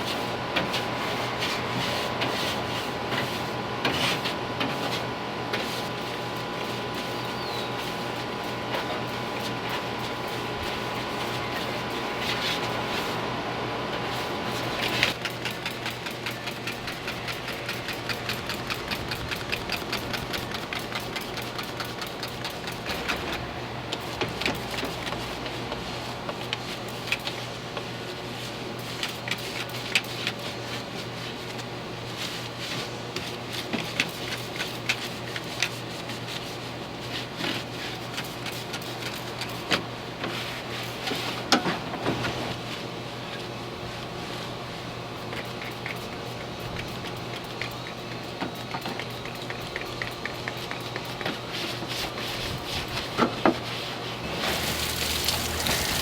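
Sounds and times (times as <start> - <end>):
brush scrubbing engine parts: 53.6 - 56.0.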